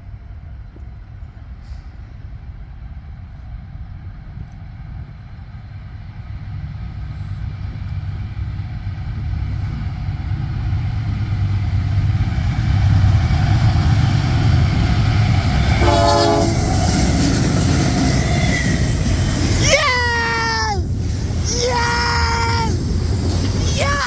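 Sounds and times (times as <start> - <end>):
train rumble: 0.0 - 24.0
locomotive air horn blast: 15.8 - 16.7.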